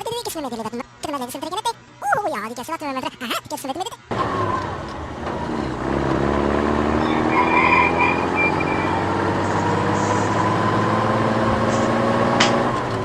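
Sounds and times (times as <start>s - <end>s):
vehicle engine running: 4.1s - 13.0s.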